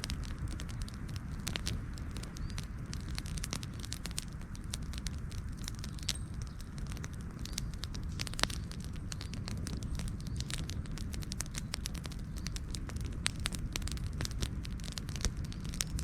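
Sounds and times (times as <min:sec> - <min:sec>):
campfire crackling: 0:00.0 - 0:16.0
fire popping and snapping: 0:00.0 - 0:16.0
low rumble of burning: 0:00.0 - 0:16.0.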